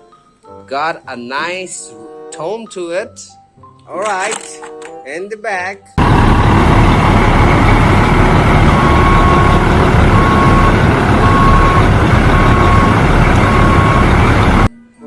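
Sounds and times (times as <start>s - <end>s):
heavy vehicle engine running: 6.0s - 14.7s
reversing alarm beeping: 6.4s - 14.7s.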